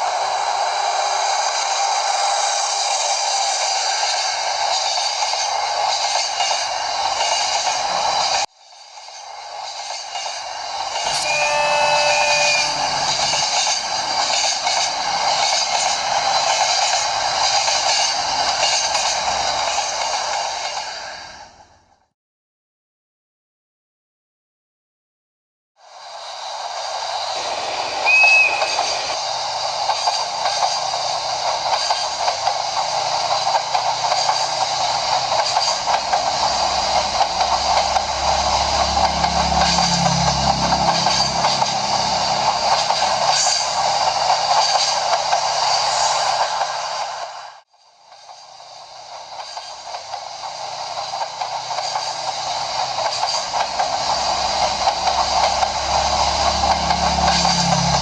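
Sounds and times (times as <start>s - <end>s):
model train running on track: 0.0s - 22.1s, 25.8s - 58.0s
short high chirp: 11.0s - 14.3s, 27.1s - 29.5s.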